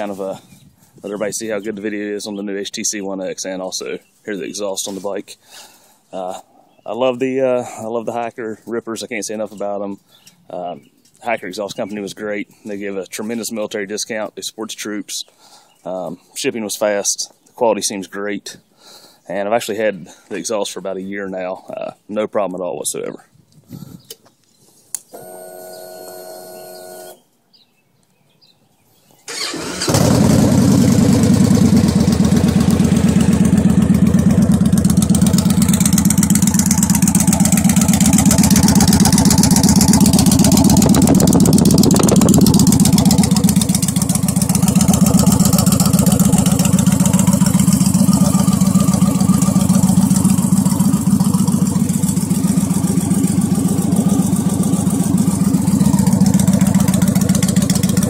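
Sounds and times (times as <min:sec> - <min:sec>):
motorcycle engine idling: 0:29.9 - 0:58.0.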